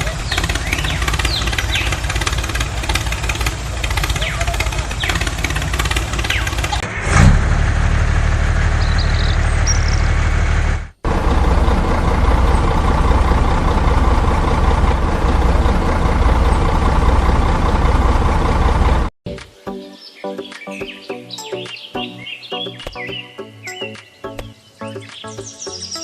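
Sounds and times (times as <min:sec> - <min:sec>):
engine running steadily: 0:00.0 - 0:19.1.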